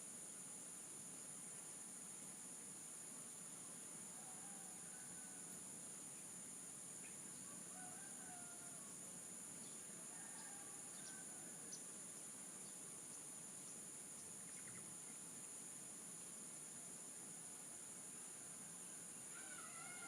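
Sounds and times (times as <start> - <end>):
insect trill: 0.0 - 20.0
distant rooster crowing: 4.1 - 5.5, 7.4 - 9.0, 10.0 - 11.8, 18.8 - 20.0.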